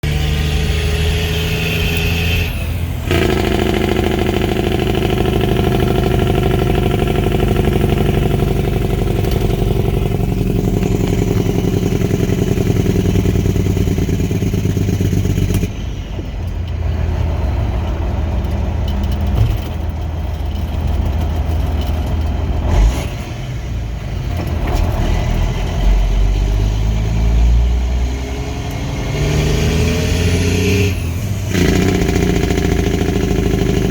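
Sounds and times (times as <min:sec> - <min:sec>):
truck engine brake rattling: 0:01.9 - 0:27.4.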